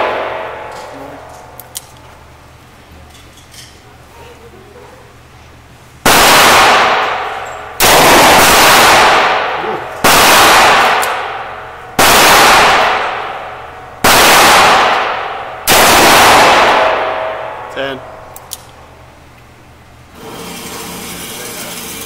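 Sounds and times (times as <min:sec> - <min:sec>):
revolver gunshots: 0:00.0 - 0:01.4, 0:06.0 - 0:17.7.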